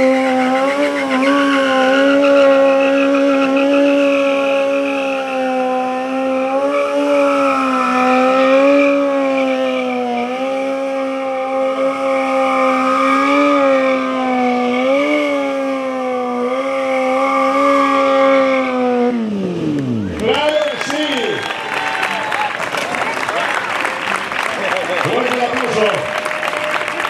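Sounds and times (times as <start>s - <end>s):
motorcycle engine at high revs: 0.0s - 20.3s.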